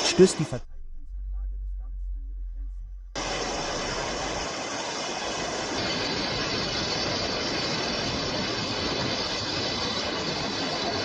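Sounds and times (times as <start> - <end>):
floodwater roaring: 3.2 - 9.7.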